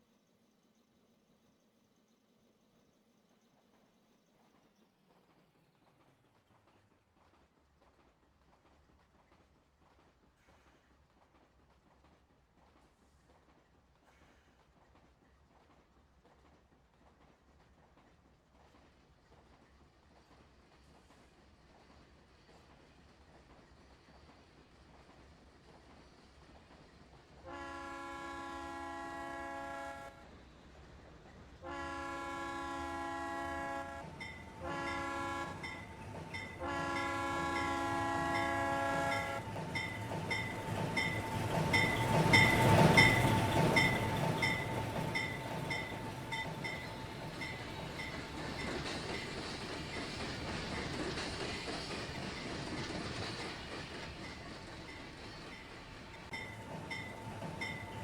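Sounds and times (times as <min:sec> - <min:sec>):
train rolling by: 0:04.4 - 0:58.0
steam whistle blowing: 0:31.6 - 0:35.8, 0:36.6 - 0:39.4
locomotive bell ringing: 0:34.1 - 0:49.2, 0:56.3 - 0:58.0.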